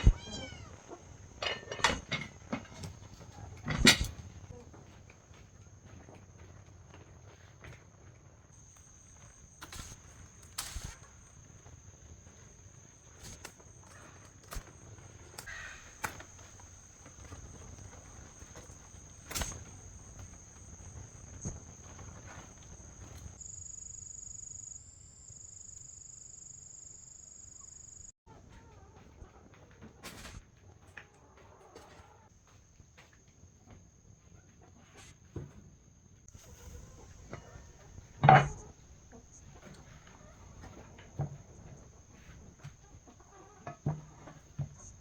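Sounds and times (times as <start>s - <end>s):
insects trilling: 0.0s - 7.4s, 8.6s - 28.2s, 36.2s - 45.0s
light knocks and rustles: 0.0s - 7.9s.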